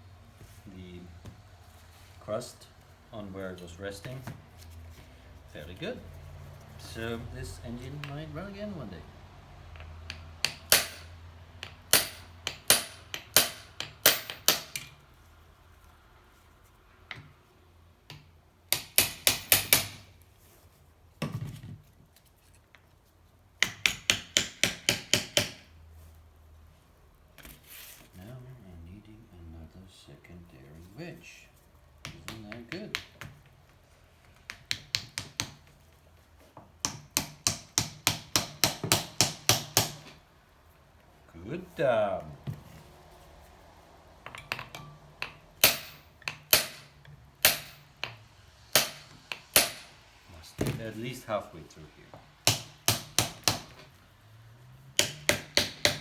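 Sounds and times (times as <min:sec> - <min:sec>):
hammer tapping on metal: 0:09.8 - 0:15.0, 0:18.1 - 0:20.1, 0:34.5 - 0:35.7, 0:44.3 - 0:50.0, 0:55.0 - 0:56.0.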